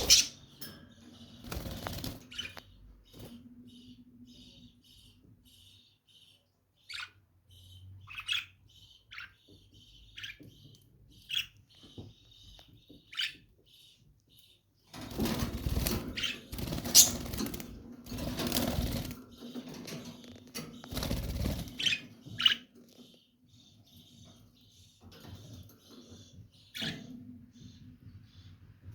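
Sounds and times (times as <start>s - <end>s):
lovebirds chirping: 0.0s - 28.9s
wings flapping and rustling: 1.4s - 2.5s, 15.0s - 22.0s.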